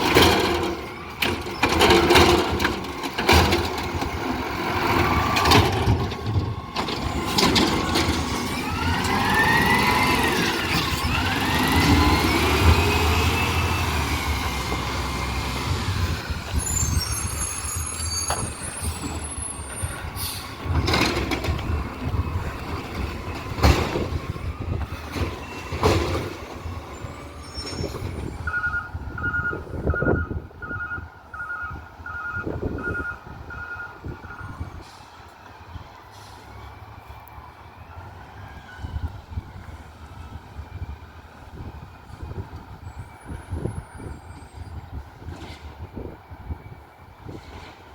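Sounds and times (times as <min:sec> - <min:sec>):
garbage truck engine whining: 0:00.0 - 0:47.9
reversing alarm beeping: 0:16.0 - 0:20.5, 0:26.9 - 0:34.8.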